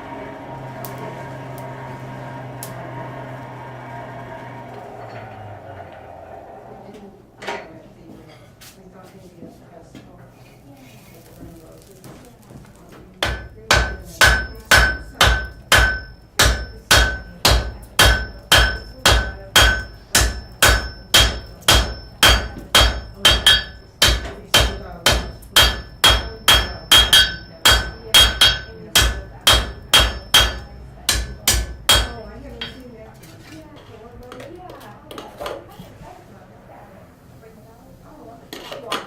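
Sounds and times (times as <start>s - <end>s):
hammer striking metal on anvil: 13.2s - 33.0s.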